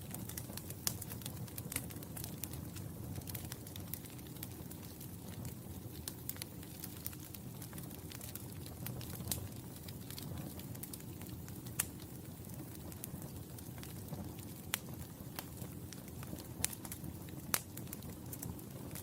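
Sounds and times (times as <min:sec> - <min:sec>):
low rumble of flames: 0:00.0 - 0:19.0
wood fire crackling: 0:00.0 - 0:19.0
loud fire pops: 0:00.1 - 0:19.0.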